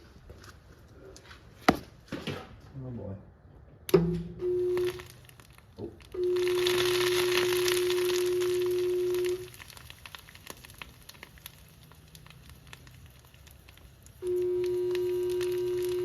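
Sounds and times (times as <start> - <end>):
sizzling and crackling: 4.4 - 16.0
faint crackles and ticks: 4.7 - 16.0
fan motor electrical hum: 11.9 - 16.0.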